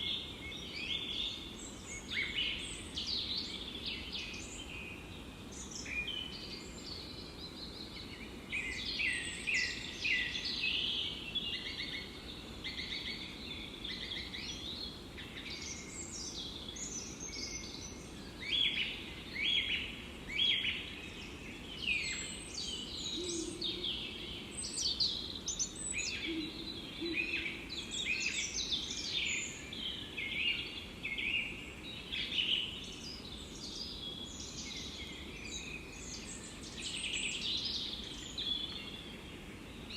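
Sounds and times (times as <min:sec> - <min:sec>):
low background hiss: 0:00.0 - 0:39.9
songbirds chirping and trilling: 0:00.0 - 0:39.9.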